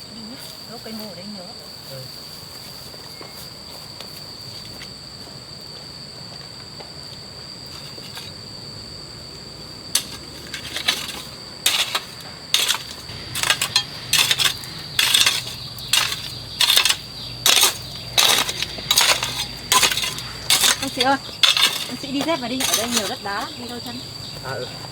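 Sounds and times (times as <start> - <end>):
high-pitched insect drone: 0.0 - 24.9
shovel scraping stony soil: 10.0 - 23.5.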